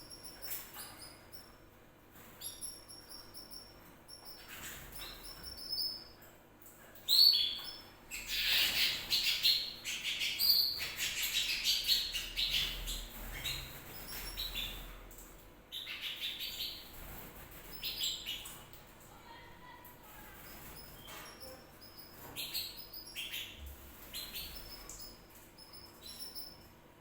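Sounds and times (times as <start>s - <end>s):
canary singing: 7.0s - 14.9s, 15.7s - 18.6s, 20.2s - 26.7s.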